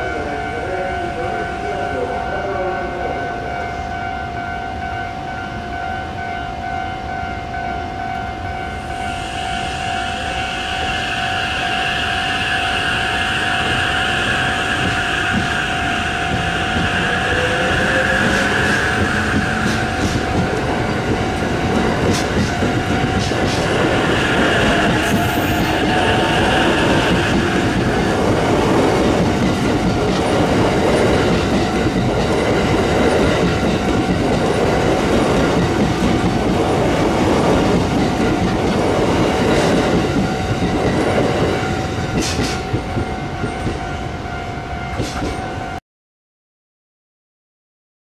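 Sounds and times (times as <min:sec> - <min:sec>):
electric train whine: 0:00.0 - 0:45.8
train wheels on tracks: 0:00.0 - 0:45.8.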